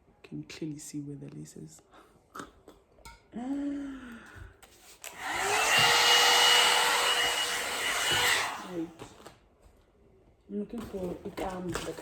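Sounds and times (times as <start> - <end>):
hair dryer air rushing: 5.0 - 9.0
hair dryer motor whine: 5.0 - 9.1.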